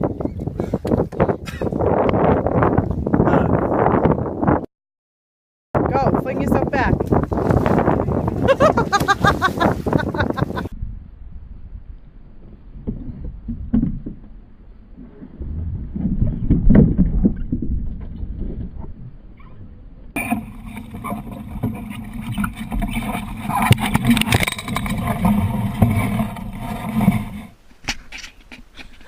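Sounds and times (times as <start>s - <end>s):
boat and water noise: 0.0s - 4.6s, 5.8s - 29.0s
noisy rush: 20.2s - 27.6s.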